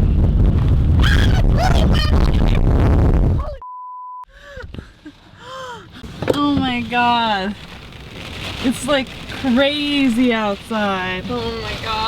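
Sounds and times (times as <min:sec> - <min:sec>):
wind buffeting microphone: 0:00.0 - 0:03.6.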